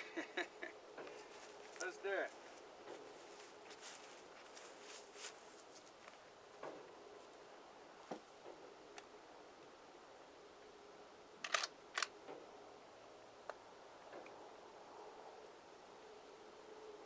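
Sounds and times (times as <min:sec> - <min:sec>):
faint steady hum: 0:00.0 - 0:17.0
rifle mechanism clicks: 0:11.4 - 0:12.1.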